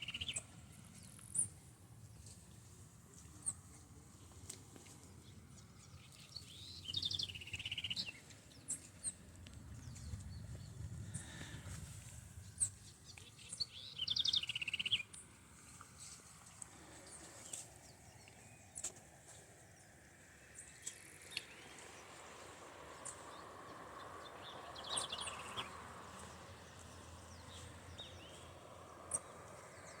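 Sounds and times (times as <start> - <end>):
high bird chirps: 13.2 - 15.1.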